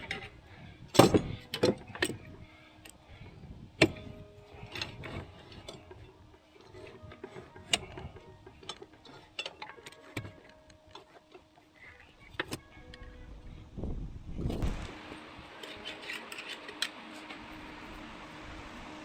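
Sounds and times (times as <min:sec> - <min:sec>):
sharp metal knocks: 0:01.0 - 0:01.8
metallic clicks of tools: 0:03.8 - 0:11.7, 0:15.6 - 0:17.3.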